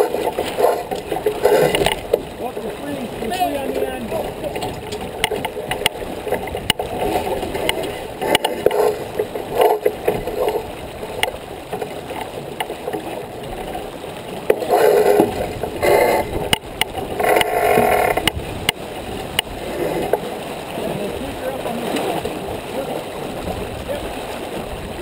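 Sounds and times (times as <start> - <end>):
water rushing along boat hull: 0.0 - 25.0
small clicks and knocks: 0.3 - 2.2, 4.5 - 10.6, 14.4 - 19.5.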